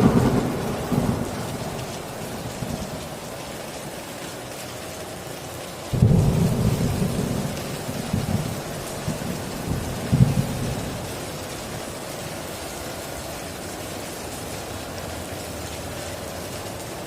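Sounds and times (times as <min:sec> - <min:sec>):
thunder rumble: 0:00.0 - 0:03.7, 0:05.9 - 0:12.5
heavy rain on a tin roof: 0:00.0 - 0:17.0.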